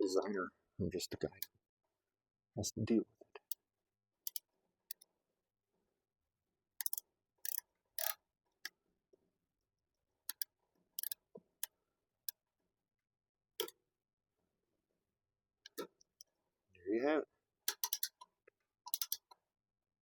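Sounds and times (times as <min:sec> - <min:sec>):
sharp metal clicks of wrench: 0:04.3 - 0:05.0, 0:06.8 - 0:08.2, 0:10.3 - 0:11.2, 0:17.7 - 0:18.2, 0:18.9 - 0:19.4.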